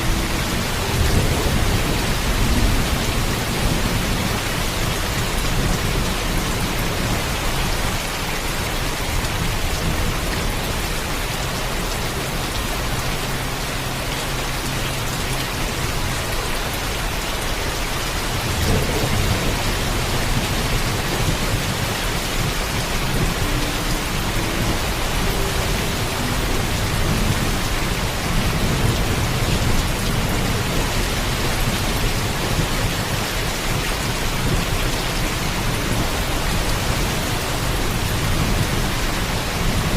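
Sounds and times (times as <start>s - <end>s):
heavy rain falling: 0.0s - 39.9s
distant thunder rumbling: 18.4s - 33.3s.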